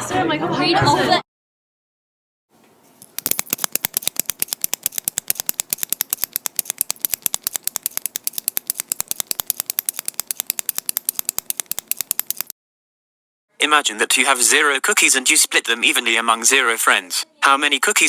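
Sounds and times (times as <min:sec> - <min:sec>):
rapid mechanical clicking: 0:03.0 - 0:12.5.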